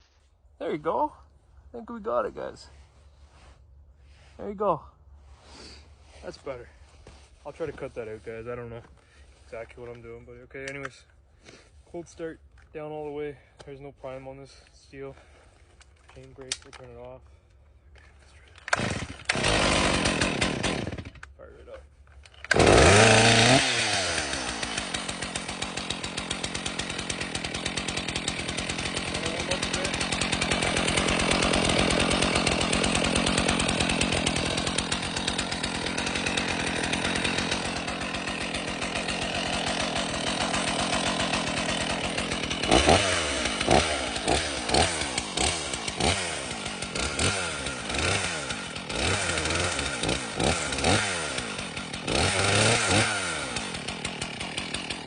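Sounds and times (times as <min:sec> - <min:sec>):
chainsaw engine revving: 0:18.6 - 0:21.3, 0:22.4 - 0:55.0.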